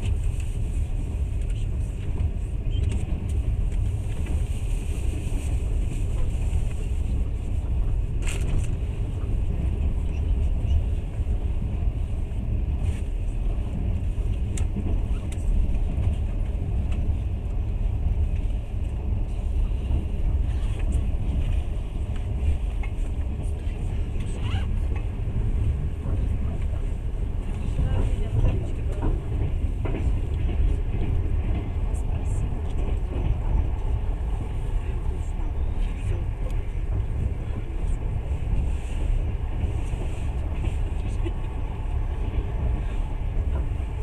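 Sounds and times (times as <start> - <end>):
low rumble of train wheels: 0.0 - 44.0.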